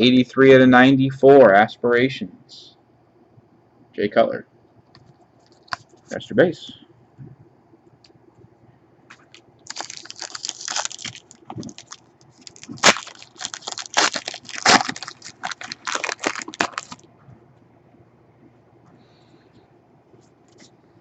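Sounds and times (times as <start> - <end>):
foil wrapper tearing and crinkling: 9.2 - 17.0.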